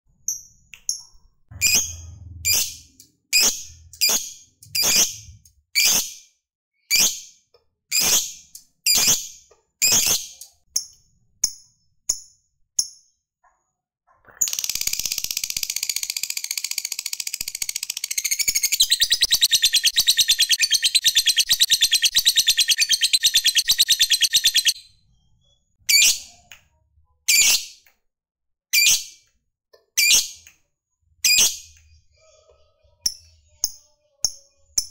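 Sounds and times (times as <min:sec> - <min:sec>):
lovebird calling and chattering: 0:14.4 - 0:24.8.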